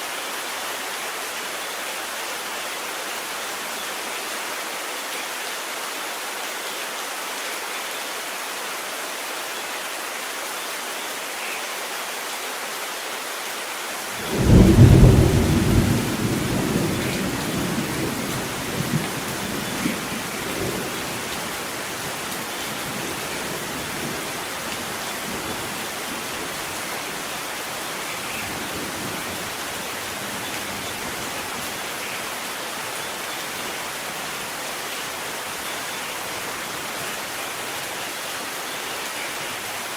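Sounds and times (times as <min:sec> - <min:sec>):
heavy rain: 0:00.0 - 0:39.9
thunderclap rumbling: 0:14.2 - 0:21.2.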